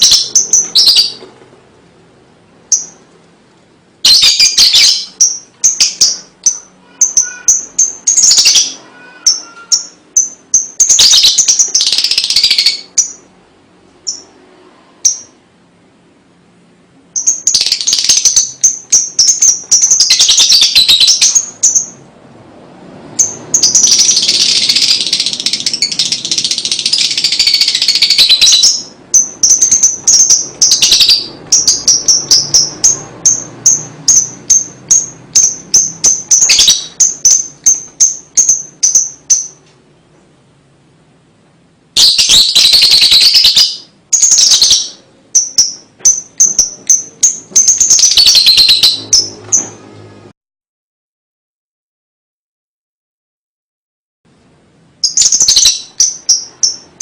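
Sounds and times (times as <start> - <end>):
lovebird chattering trills: 0.0 - 1.2, 4.0 - 13.3, 17.2 - 22.0, 23.2 - 39.6, 42.0 - 49.7, 55.0 - 57.0.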